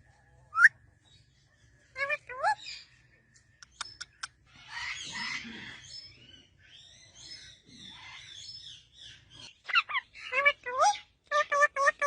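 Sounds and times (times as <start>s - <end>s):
parrot chattering: 9.6s - 12.0s.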